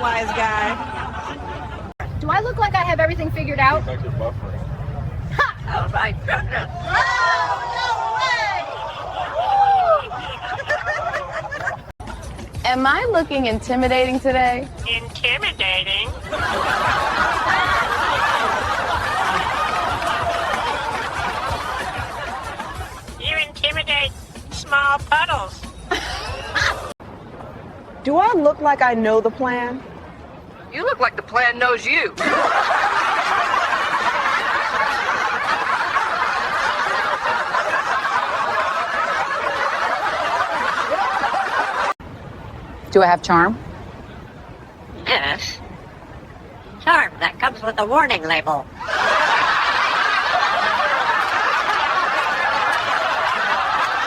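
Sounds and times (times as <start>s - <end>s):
crowd laughing: 0.0s - 2.0s, 5.3s - 12.0s, 16.0s - 23.2s, 25.8s - 27.0s, 32.2s - 42.0s, 48.7s - 54.0s.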